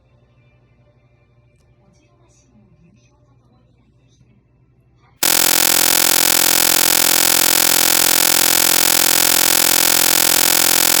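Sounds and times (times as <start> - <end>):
loud electronic buzz: 5.2 - 11.0.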